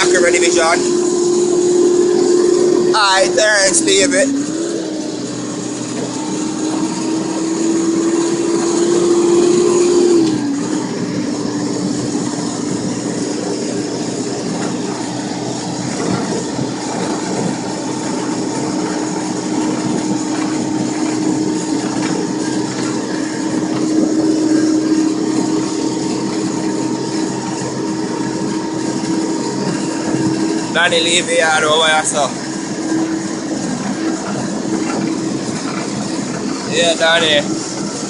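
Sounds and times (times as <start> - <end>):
backhoe engine running with whine: 0.0 - 38.0.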